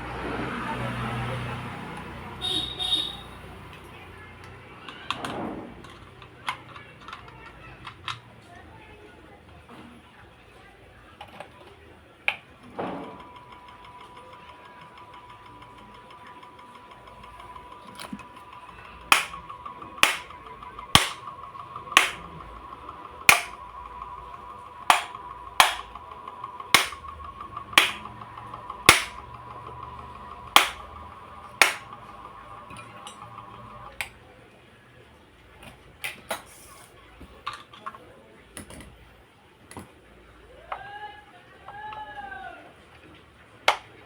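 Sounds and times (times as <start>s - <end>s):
scattered clicks: 13.5s - 32.4s
sharp knocks: 19.1s - 19.4s, 20.0s - 20.3s, 21.0s - 21.2s, 22.0s - 22.2s, 23.3s - 23.6s, 24.9s - 25.9s, 26.8s - 27.0s, 27.8s - 28.0s, 28.9s - 29.2s, 30.6s - 30.8s, 31.6s - 31.9s.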